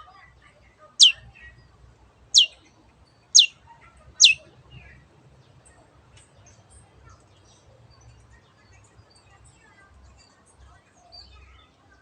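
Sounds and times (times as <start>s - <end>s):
faint bird chirps: 1.0s - 1.3s, 2.4s - 2.6s, 3.4s - 3.6s, 4.2s - 4.4s.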